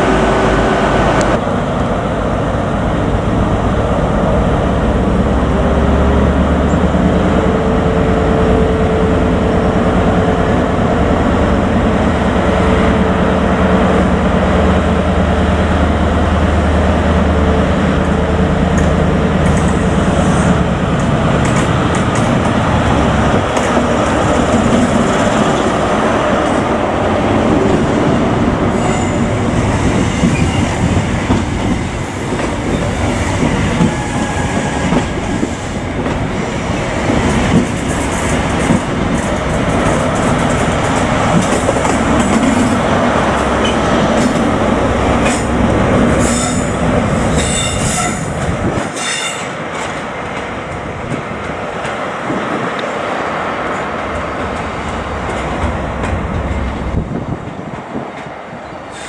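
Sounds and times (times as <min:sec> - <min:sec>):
train wheel clatter: 0:18.7 - 0:26.7, 0:28.7 - 0:53.0.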